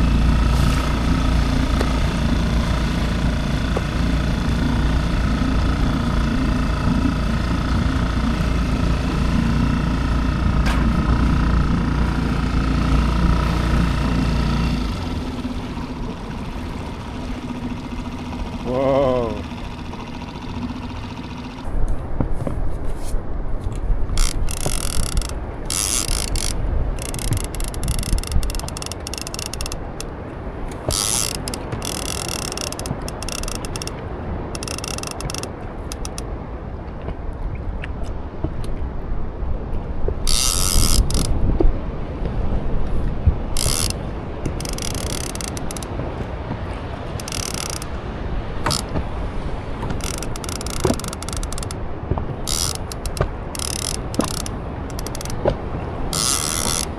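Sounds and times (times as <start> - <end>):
fishing reel ratcheting and whirring: 0.0 - 21.8, 23.7 - 36.4, 40.2 - 41.4, 43.5 - 49.1, 49.8 - 56.9
low rumble: 0.0 - 25.7.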